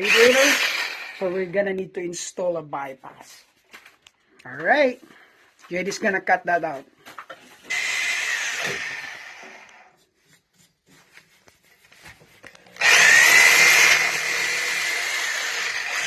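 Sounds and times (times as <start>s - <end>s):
power tool cutting pipe with whine: 0.0s - 1.4s, 7.6s - 10.0s, 12.7s - 16.0s.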